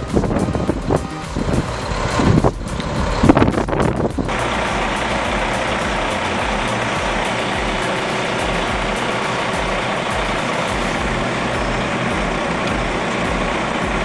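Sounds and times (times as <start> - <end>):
heavy machine engine droning: 0.0 - 14.0.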